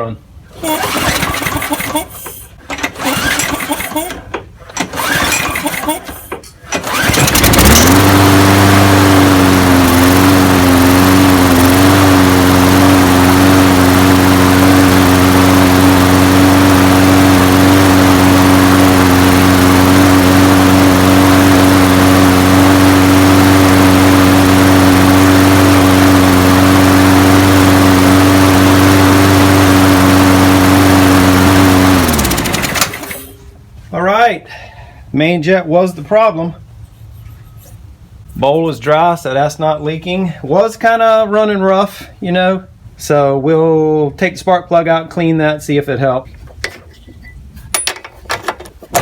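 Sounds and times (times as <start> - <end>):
lawn mower engine running: 0.4 - 33.6, 47.8 - 49.0.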